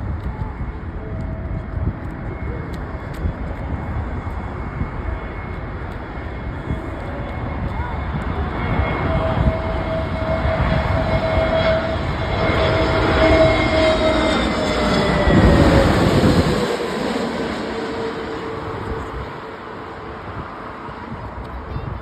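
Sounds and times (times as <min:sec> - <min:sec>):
jet engines passing: 0:00.0 - 0:22.0.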